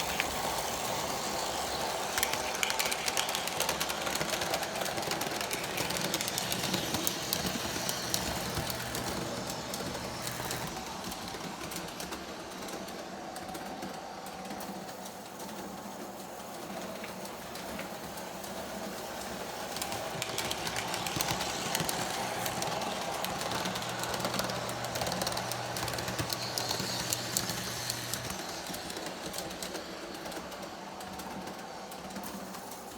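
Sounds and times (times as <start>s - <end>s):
model train diesel sound effects: 0.0s - 32.9s
model train motor hum: 0.0s - 32.9s
wheels clicking and rattling on rails: 0.0s - 32.9s.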